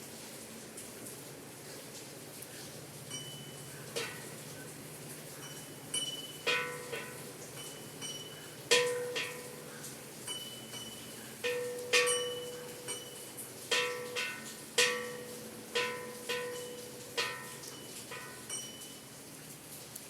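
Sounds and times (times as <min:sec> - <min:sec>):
church bells pealing: 0:10.3 - 0:18.6.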